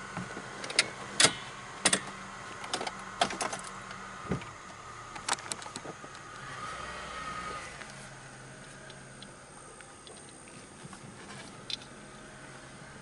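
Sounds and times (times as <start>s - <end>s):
car engine humming: 0.0s - 13.0s
sharp clicks and knocks: 0.2s - 4.5s, 5.1s - 6.4s.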